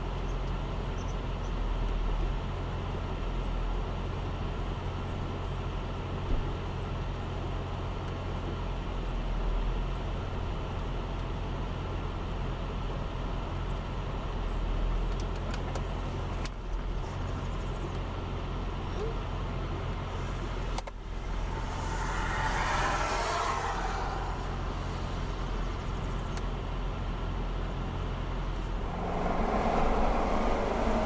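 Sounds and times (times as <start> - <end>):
car engine idling: 20.2 - 31.0.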